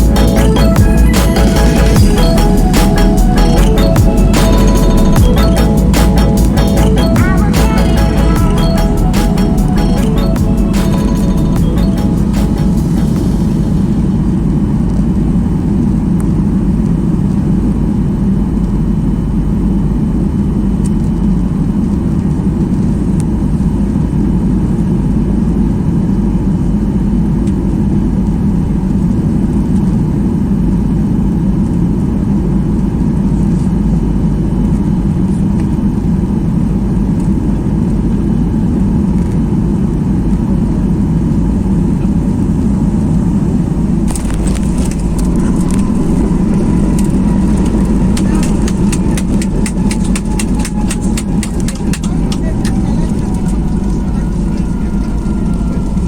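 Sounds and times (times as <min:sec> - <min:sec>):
airplane cabin engine roar: 0:00.0 - 0:56.0
faint steady whine: 0:28.0 - 0:56.0.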